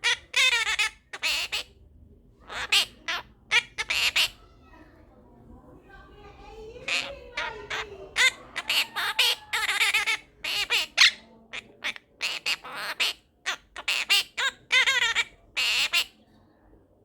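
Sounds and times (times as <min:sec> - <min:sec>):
parrot squawking and chirping: 0:00.0 - 0:01.8, 0:02.4 - 0:04.7, 0:06.8 - 0:16.2.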